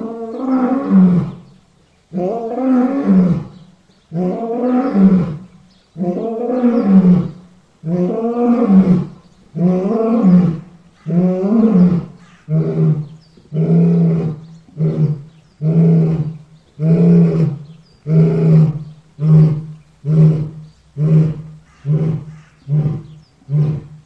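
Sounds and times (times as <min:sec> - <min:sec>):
lion roaring: 0:04.2 - 0:24.0.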